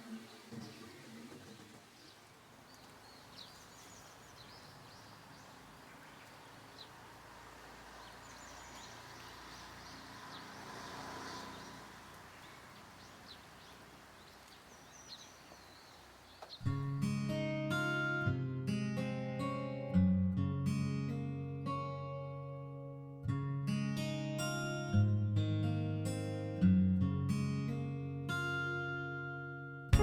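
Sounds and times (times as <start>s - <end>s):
steady low hiss: 0.0s - 8.0s
small birds chirping: 0.0s - 16.8s.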